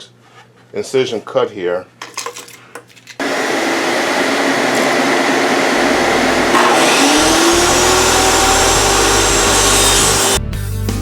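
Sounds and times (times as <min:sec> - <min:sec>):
blade cutting wood: 0:03.2 - 0:10.4
table saw whining: 0:03.2 - 0:10.4.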